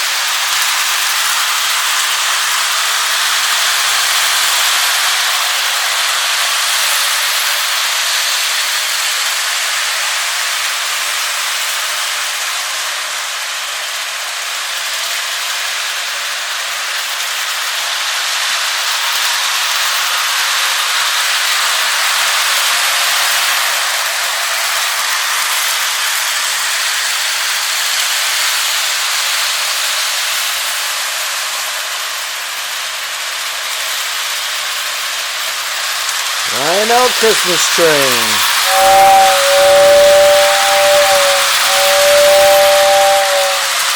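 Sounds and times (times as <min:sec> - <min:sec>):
toy train hissing rush: 0:36.5 - 0:43.9.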